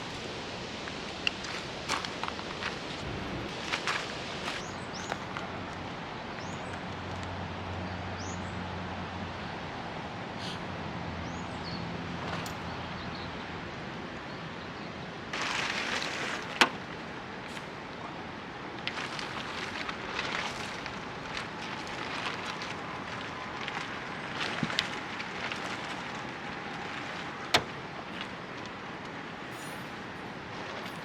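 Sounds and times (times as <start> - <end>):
outdoor background noise: 0.0 - 31.0
camp gear rustling: 18.9 - 31.0.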